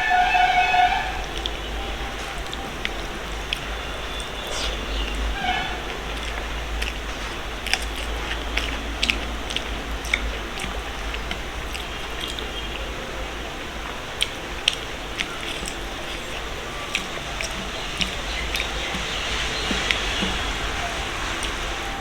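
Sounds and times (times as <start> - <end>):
steady low hum: 1.2 - 22.0
chewing and mouth smacks: 5.9 - 12.8, 13.5 - 21.8.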